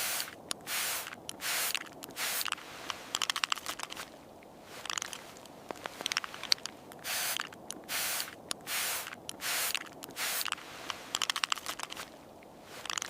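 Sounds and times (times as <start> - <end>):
short hissing bursts: 0.0 - 4.1, 7.0 - 12.1
light clicks: 0.4 - 7.8, 8.4 - 13.0.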